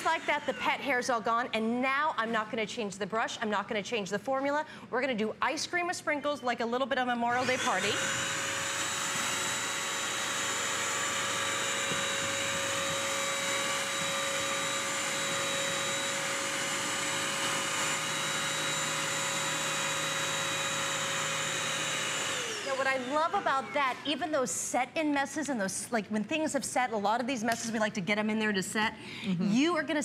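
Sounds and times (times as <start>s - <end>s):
wet vacuum motor whine: 7.3s - 24.1s.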